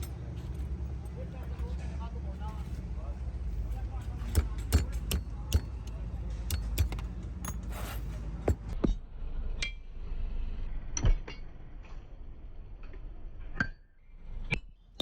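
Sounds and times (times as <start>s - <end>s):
metal tools clinking: 0.0s - 8.8s
low background rumble: 0.0s - 13.6s.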